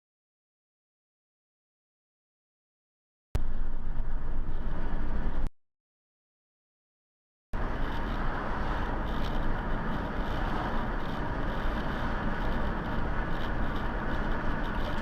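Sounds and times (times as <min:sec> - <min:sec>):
car road and engine noise: 0:03.4 - 0:05.5, 0:07.6 - 0:15.0.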